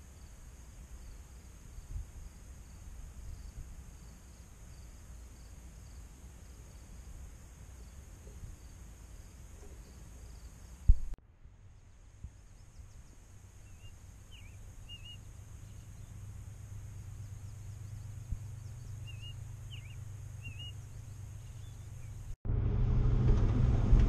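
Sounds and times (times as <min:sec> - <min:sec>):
low outdoor rumble: 0:00.0 - 0:24.0
songbird chirping: 0:11.6 - 0:22.4
car driving: 0:15.2 - 0:24.0.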